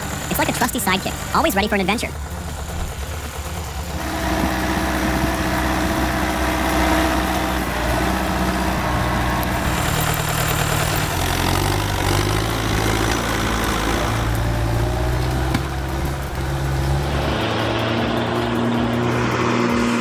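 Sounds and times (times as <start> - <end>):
heavy vehicle engine running: 0.0 - 20.0.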